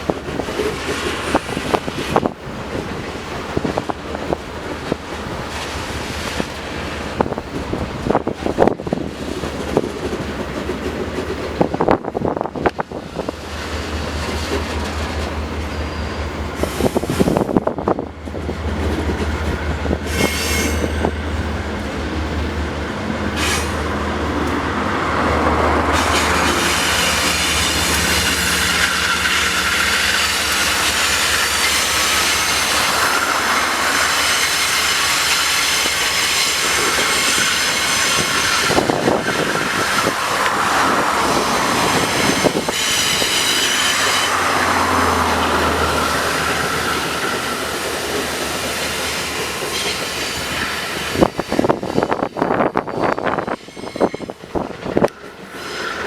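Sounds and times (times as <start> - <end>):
train wagons rumbling: 0.0 - 56.0
wheels squealing on rail: 0.0 - 56.0.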